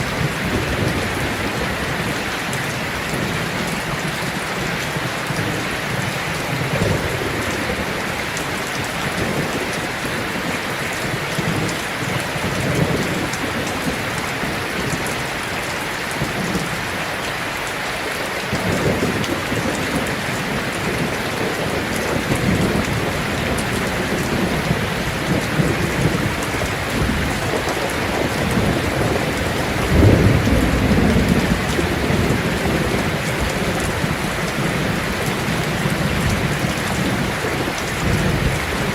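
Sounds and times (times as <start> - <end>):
heavy rain on a tin roof: 0.0 - 38.9
thunder rumbling: 18.5 - 38.9.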